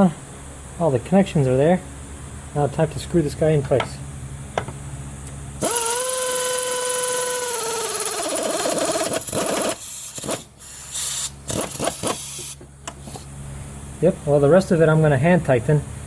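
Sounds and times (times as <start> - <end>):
pneumatic air wrench whining: 5.6 - 13.3.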